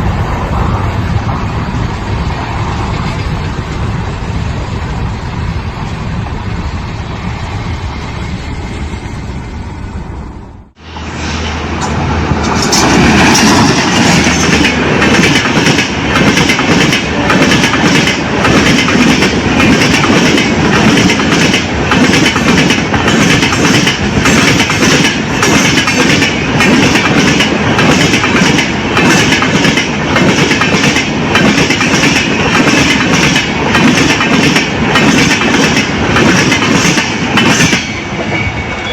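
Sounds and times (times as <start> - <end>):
express train passing: 0.0 - 38.9
train wheels clattering: 11.8 - 38.8.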